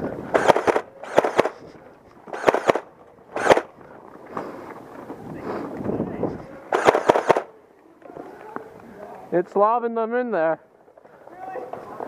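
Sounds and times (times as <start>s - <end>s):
foam dart blaster firing clicks: 2.3s - 2.8s, 6.8s - 7.5s.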